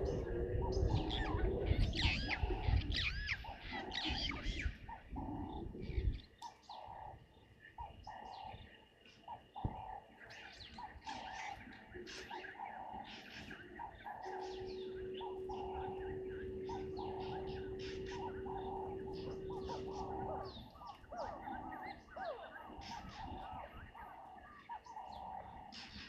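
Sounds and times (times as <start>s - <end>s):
bird repeating low note: 0.0s - 26.0s
birds chirping: 0.0s - 26.0s
low rumbling noise: 13.8s - 22.1s.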